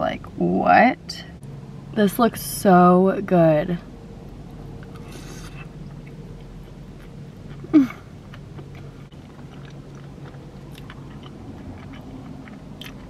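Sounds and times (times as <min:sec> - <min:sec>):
person chewing fries: 0:04.8 - 0:13.0.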